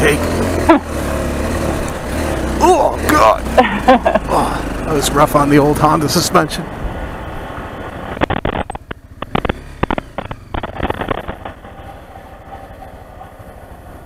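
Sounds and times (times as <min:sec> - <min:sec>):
motorcycle engine under load: 0:00.0 - 0:06.0, 0:07.5 - 0:14.0
wind noise: 0:06.8 - 0:14.0
knocks and clatters over rocks: 0:08.2 - 0:11.8.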